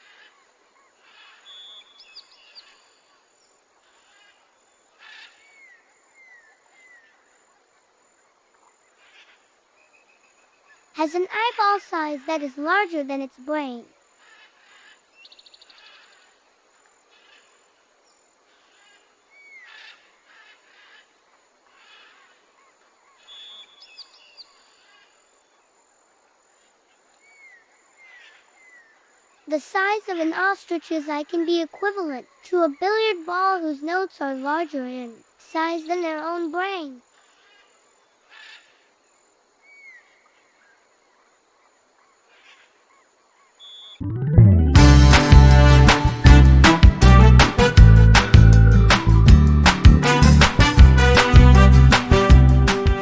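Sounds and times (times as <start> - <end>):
falling whistled bird calls: 1.4 - 2.4, 43.6 - 44.0
faint bird calls: 18.4 - 25.3, 37.0 - 44.0.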